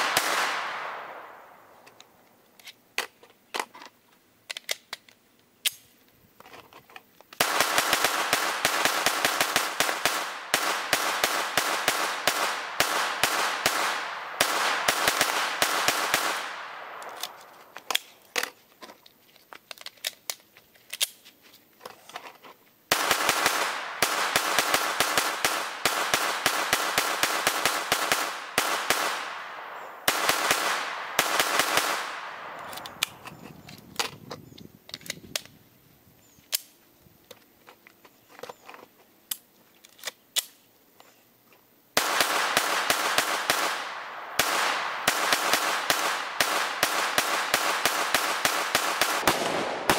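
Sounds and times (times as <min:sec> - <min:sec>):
rifle firing rapid shots: 0:00.0 - 0:01.2, 0:07.4 - 0:17.4, 0:22.9 - 0:33.0, 0:42.0 - 0:49.9
scattered clicks: 0:32.4 - 0:35.6.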